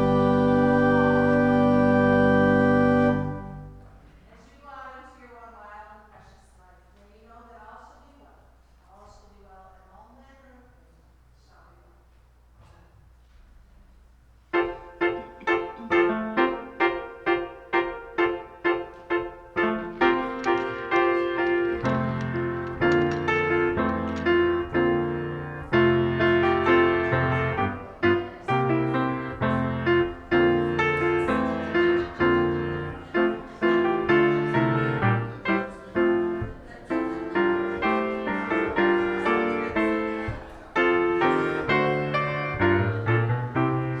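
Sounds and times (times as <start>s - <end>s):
slow hymn-like piano chords: 0.0s - 4.2s, 14.5s - 44.0s.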